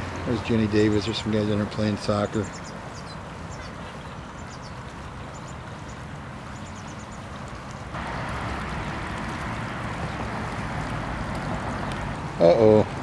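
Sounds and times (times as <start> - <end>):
creek water flowing: 0.0 - 13.0
outdoor rumble: 0.0 - 13.0.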